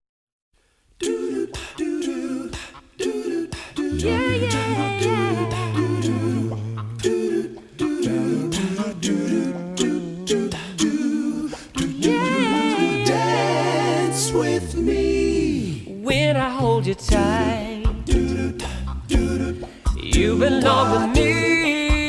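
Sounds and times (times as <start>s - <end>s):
voices singing wordless harmonies: 1.0s - 22.0s
held low notes: 3.9s - 7.5s, 17.1s - 21.6s.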